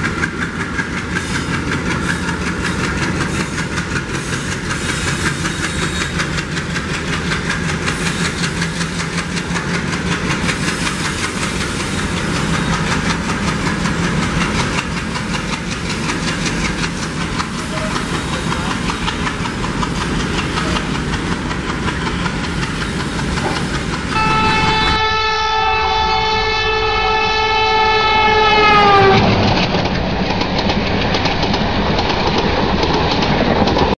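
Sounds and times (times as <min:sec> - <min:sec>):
train wheels clattering over rails: 0:00.0 - 0:25.1, 0:28.7 - 0:34.0
train horn blast: 0:24.1 - 0:29.3.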